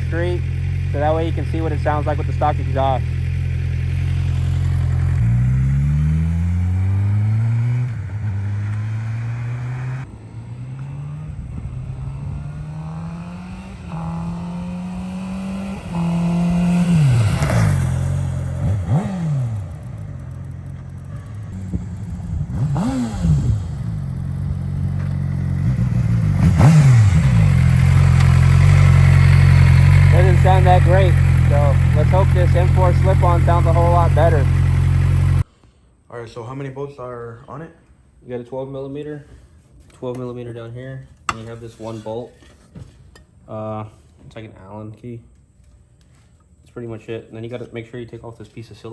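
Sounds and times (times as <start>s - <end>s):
motorcycle passing by: 0.0s - 35.4s
motorcycle revving through gears: 0.0s - 35.5s.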